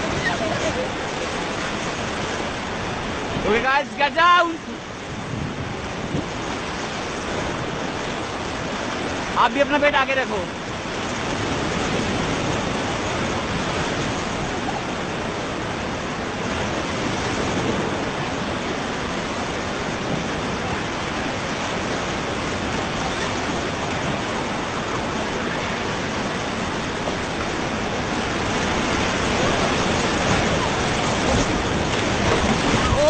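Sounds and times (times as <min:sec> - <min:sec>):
whitewater rapids rushing: 0:00.0 - 0:33.0.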